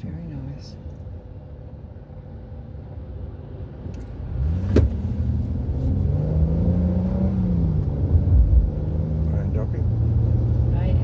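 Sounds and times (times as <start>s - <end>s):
vehicle engine accelerating: 3.9s - 11.0s.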